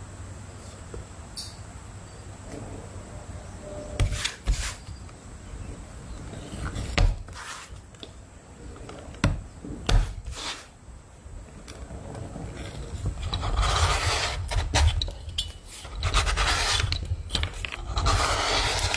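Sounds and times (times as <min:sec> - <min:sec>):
scraping and rustling: 0:04.0 - 0:10.8, 0:11.4 - 0:18.9.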